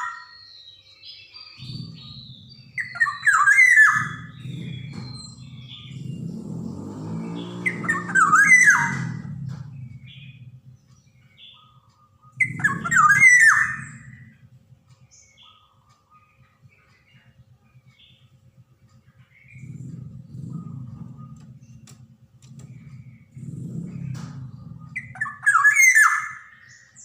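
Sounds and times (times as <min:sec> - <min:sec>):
bird giving harsh squawky calls: 0:01.6 - 0:06.2, 0:07.2 - 0:15.8, 0:22.8 - 0:27.0
low rumble: 0:01.6 - 0:27.0.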